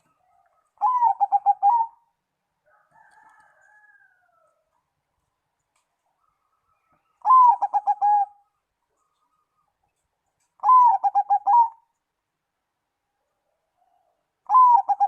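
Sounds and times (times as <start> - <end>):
dove cooing: 0.0 - 2.1, 7.2 - 8.5, 10.6 - 11.9, 14.1 - 15.0.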